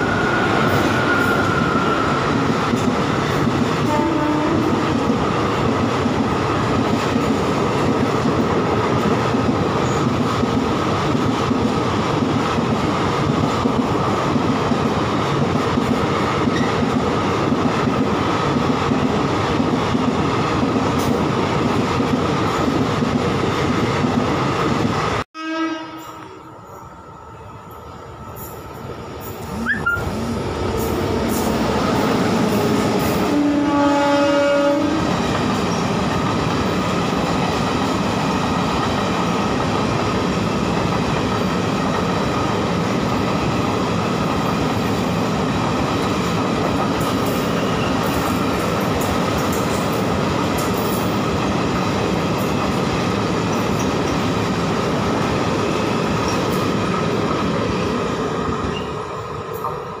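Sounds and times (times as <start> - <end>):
train coaches rumbling past: 0.0 - 60.0
locomotive horn blast: 3.8 - 4.8, 25.4 - 26.8, 33.3 - 35.0.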